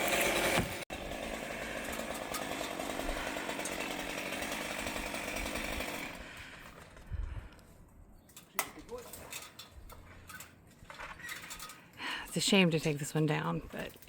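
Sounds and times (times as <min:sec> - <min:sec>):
chainsaw running: 0:00.0 - 0:07.0.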